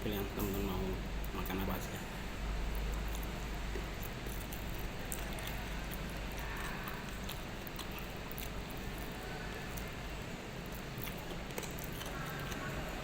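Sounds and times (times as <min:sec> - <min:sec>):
steady background hum: 0:00.0 - 0:13.0
person chewing: 0:02.7 - 0:10.0, 0:10.6 - 0:12.9.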